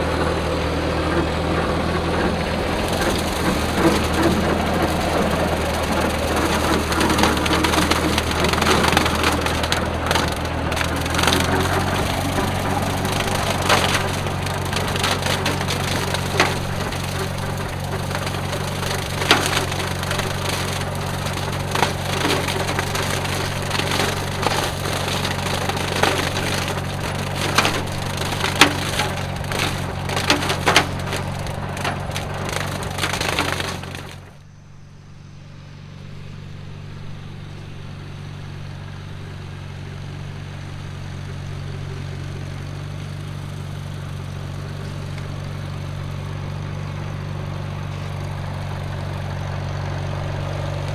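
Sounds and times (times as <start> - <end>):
rotary cutter snapping dry stalks: 0.0 - 34.4
tractor engine running: 0.0 - 50.9.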